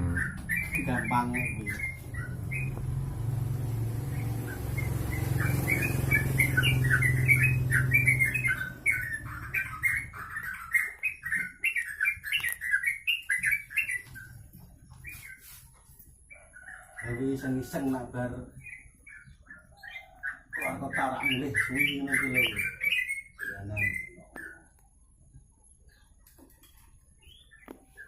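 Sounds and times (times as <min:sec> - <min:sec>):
songbird singing short chirps: 0:00.0 - 0:14.4.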